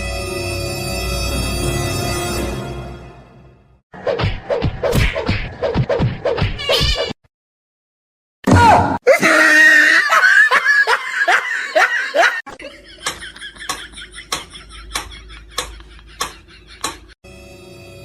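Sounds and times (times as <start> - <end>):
person laughing hard: 9.1 - 17.2.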